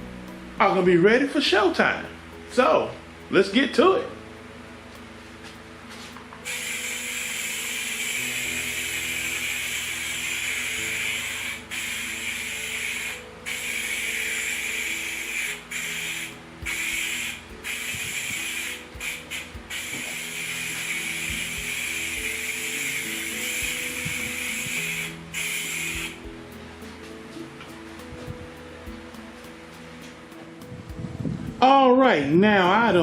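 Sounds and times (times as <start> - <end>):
aerosol spray can hissing: 6.4 - 26.4.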